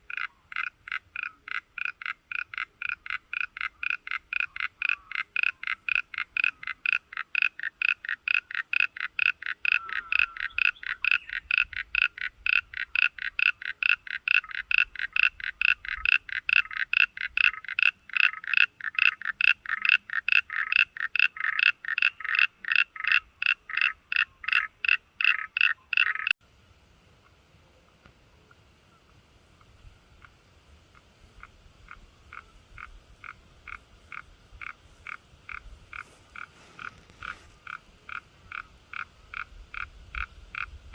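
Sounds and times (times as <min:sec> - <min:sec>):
rhythmic animal call: 0:00.0 - 0:26.3.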